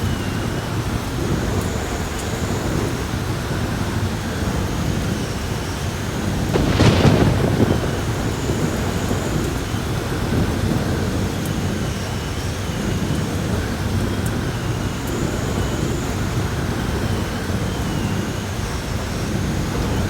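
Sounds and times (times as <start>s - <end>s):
heavy rain pouring: 0.6s - 20.0s
storm wind rumbling: 5.8s - 11.8s
thunderclap: 6.4s - 10.9s.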